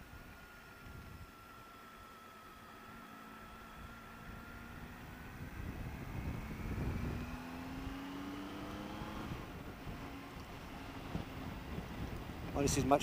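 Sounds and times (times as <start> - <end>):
motorcycle engine running: 0.0 - 13.0
wind rumble on microphone: 3.7 - 13.0.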